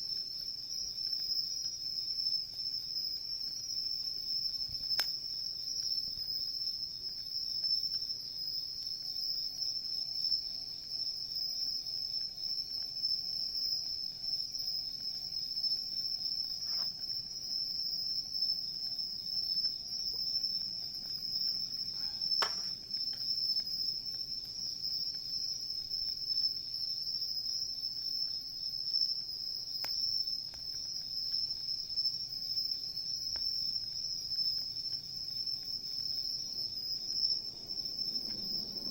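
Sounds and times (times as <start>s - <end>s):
campfire crackling: 0.0s - 38.9s
insects trilling: 0.0s - 38.9s.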